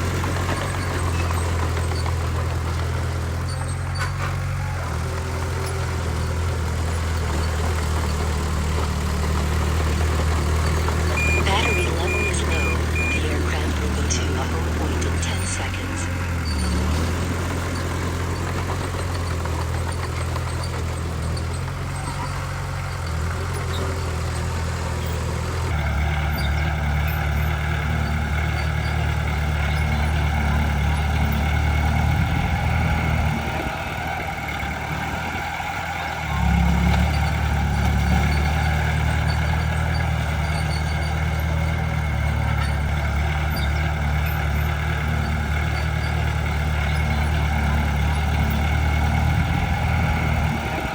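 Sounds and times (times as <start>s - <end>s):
heavy diesel machinery running: 0.0s - 50.9s.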